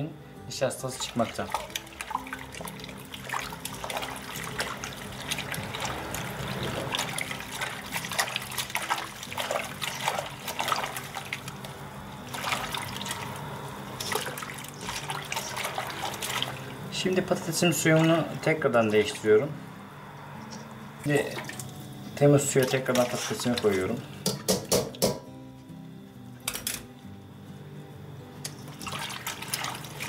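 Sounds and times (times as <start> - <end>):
hands rubbing potatoes in water: 0.9 - 13.4, 14.0 - 18.3, 22.5 - 24.0, 28.6 - 30.0
water sloshing and splashing: 0.9 - 19.4, 20.4 - 24.2, 28.5 - 30.0.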